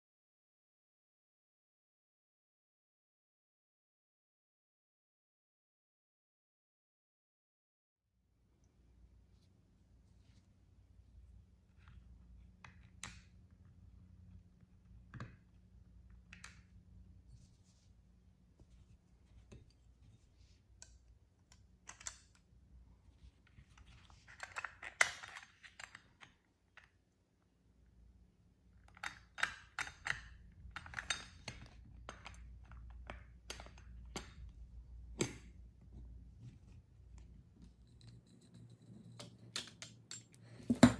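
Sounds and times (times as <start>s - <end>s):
metal toy parts clicking: 21.9s - 22.4s.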